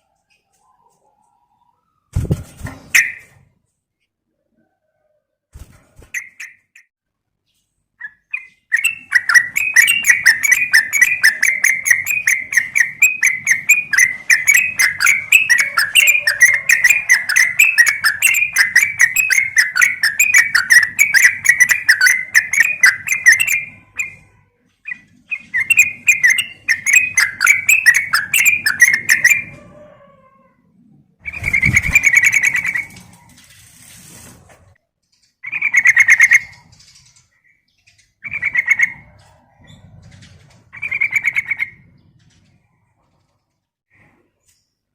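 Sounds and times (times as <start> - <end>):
bird chattering calls: 8.4 - 24.3, 24.9 - 29.5.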